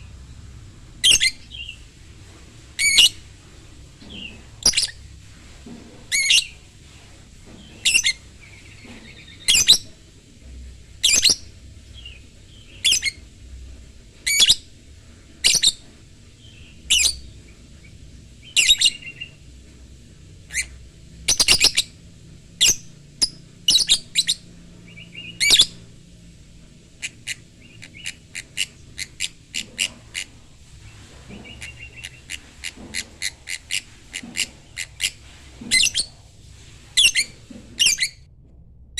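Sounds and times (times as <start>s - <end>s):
lovebird calling: 1.0s - 1.8s, 2.8s - 3.3s, 4.0s - 5.0s, 7.6s - 9.9s, 11.0s - 13.2s, 16.4s - 19.4s, 20.5s - 22.0s, 22.6s - 25.9s, 27.0s - 36.2s, 36.9s - 38.2s.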